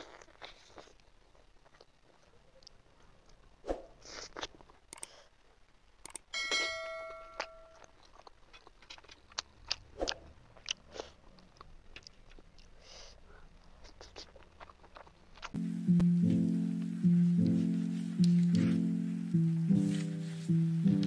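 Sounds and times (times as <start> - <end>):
ringing chime sound effect: 6.4 - 7.8
wet chewing and lip smacks: 7.8 - 15.6.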